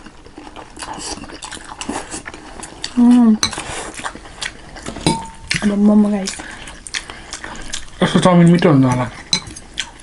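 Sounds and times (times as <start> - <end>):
cutlery clinking on dishes: 4.9 - 5.5, 8.6 - 9.6.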